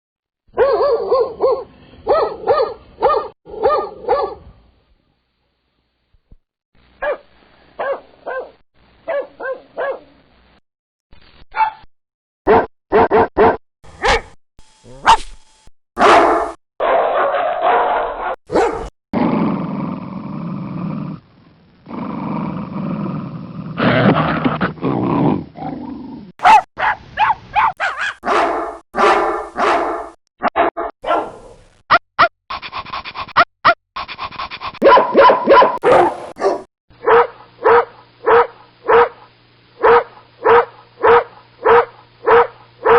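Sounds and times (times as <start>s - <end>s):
dogs barking: 0.6s - 4.4s, 7.8s - 10.1s, 12.5s - 15.3s, 16.0s - 18.9s, 26.4s - 31.5s, 34.8s - 42.9s.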